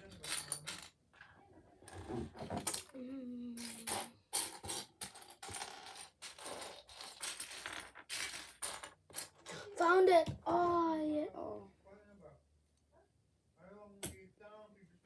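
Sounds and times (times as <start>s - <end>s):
plastic pieces clattering: 0.0s - 1.0s, 3.6s - 9.7s.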